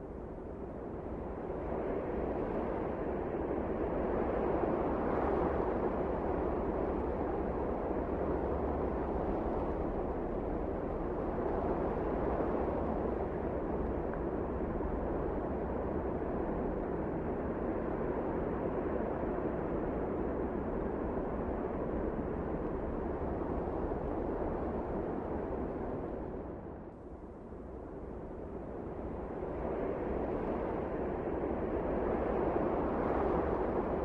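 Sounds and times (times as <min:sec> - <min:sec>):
blizzard wind rushing: 0:27.8 - 0:34.0.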